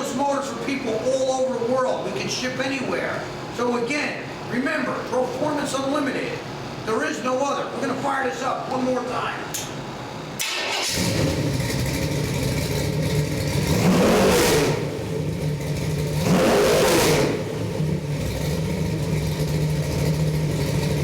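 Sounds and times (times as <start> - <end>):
car engine idling and revving: 10.4 - 21.0.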